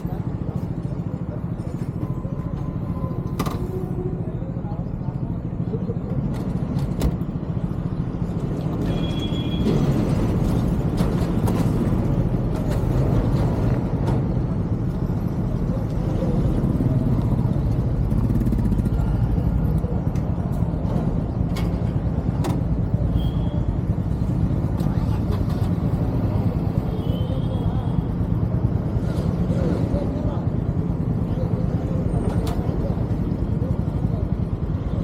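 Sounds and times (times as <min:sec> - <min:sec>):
road vehicle rumbling: 0:00.0 - 0:35.0.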